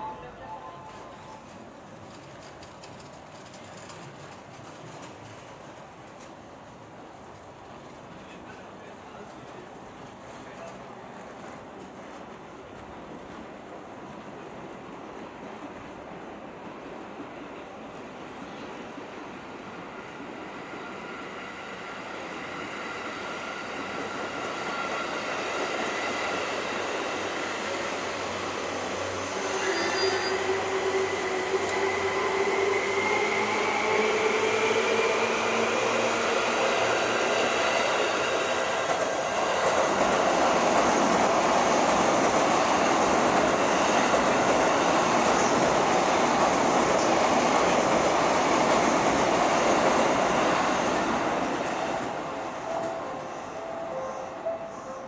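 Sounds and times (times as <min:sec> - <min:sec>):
electric train whine: 0:00.0 - 0:01.9, 0:18.8 - 0:55.0
wheels rumbling on rail: 0:00.0 - 0:21.4, 0:22.0 - 0:55.0.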